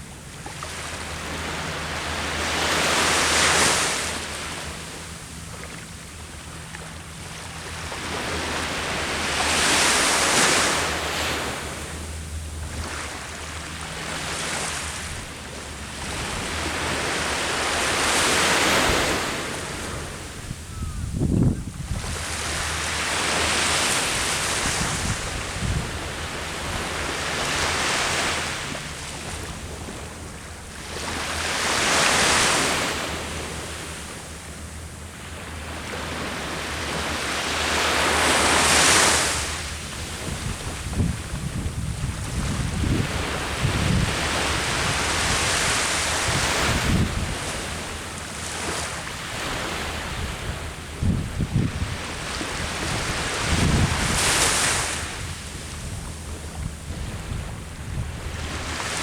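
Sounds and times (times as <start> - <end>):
ocean surf breaking: 7.9 - 20.4, 35.7 - 56.0
wind gusting on microphone: 16.0 - 28.3, 38.6 - 59.0.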